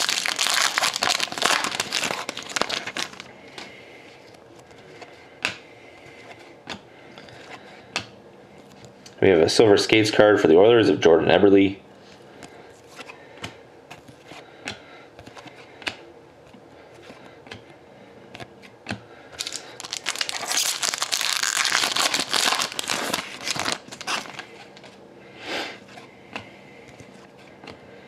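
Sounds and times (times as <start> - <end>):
foil wrapper tearing and crinkling: 0.0 - 3.3, 19.4 - 24.5
trading cards clicking and rustling: 18.4 - 24.9.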